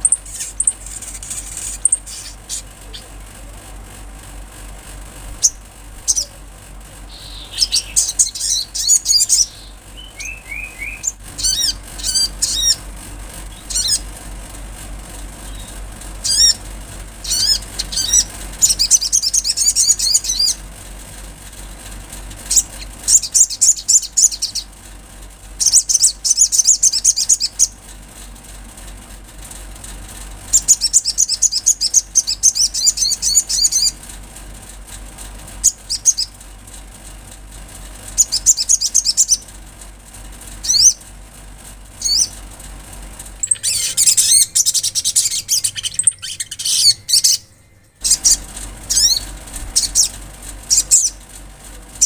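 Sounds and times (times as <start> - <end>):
bird twittering trills: 0.0 - 3.2, 5.4 - 6.4, 7.1 - 14.2, 15.4 - 20.7, 22.4 - 24.8, 25.6 - 27.8, 30.5 - 34.0, 35.6 - 36.4, 38.1 - 39.5, 40.5 - 41.1, 42.0 - 42.4, 43.4 - 51.2
faint low hum: 0.0 - 52.0
single bird chirps: 7.1 - 12.8, 17.2 - 20.6, 43.4 - 51.2.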